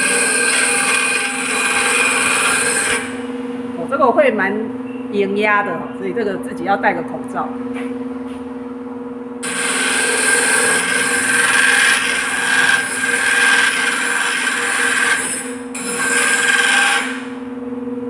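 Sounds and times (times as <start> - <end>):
motor humming: 0.0 - 3.7, 9.4 - 17.6
grinding wheel hiss: 9.4 - 17.4.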